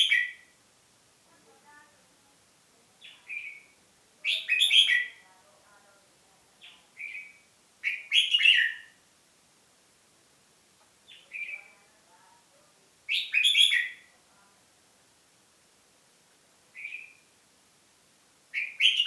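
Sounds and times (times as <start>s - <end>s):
songbird singing: 0.0s - 0.6s, 2.9s - 9.0s, 10.8s - 12.3s, 13.0s - 14.2s, 16.7s - 17.4s, 18.5s - 19.0s.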